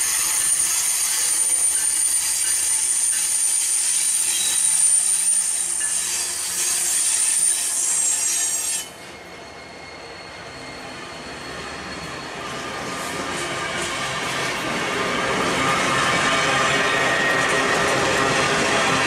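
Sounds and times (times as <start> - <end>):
high-pitched wheel squeal: 0.0 - 13.6
rushing rail roar: 0.0 - 19.0.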